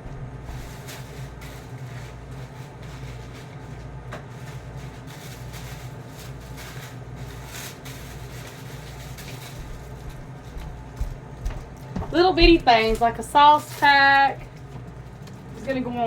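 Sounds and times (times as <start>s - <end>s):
packages rustling: 0.0s - 15.7s
low mechanical hum: 0.0s - 16.0s
soft clicks of frozen packages: 0.7s - 11.0s.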